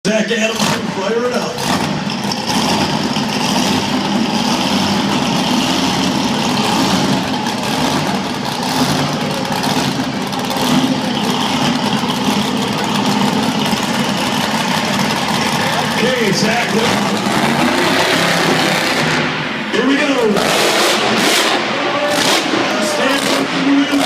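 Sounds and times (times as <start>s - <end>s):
monster truck engine revving: 0.1s - 24.0s.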